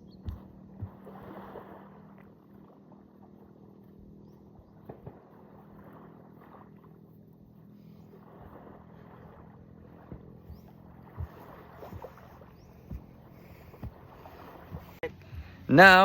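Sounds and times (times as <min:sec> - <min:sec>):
short knocks: 0:10.2 - 0:15.7.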